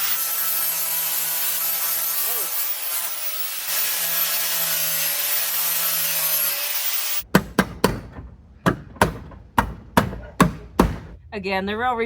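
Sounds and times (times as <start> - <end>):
power saw cutting: 0.0 - 7.2
sharp knocks: 7.3 - 11.2.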